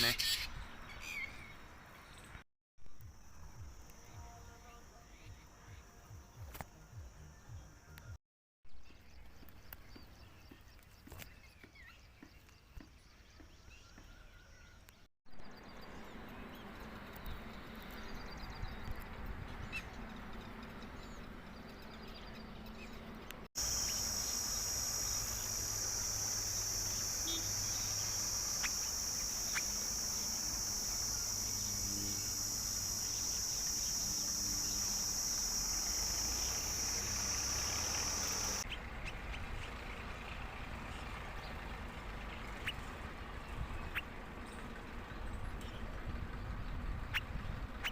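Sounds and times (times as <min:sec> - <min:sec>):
high-pitched hiss: 0:23.6 - 0:38.6.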